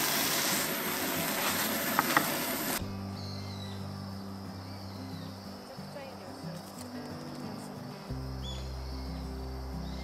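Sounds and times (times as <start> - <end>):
chicken sizzling in a pot: 0.0 - 2.8
soft background music: 2.8 - 10.0.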